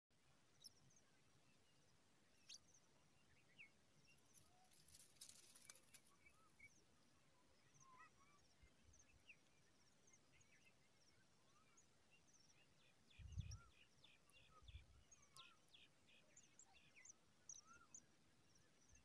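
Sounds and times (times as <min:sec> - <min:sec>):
small birds chirping: 0:00.2 - 0:19.0
rustle of dry grass: 0:04.3 - 0:06.3.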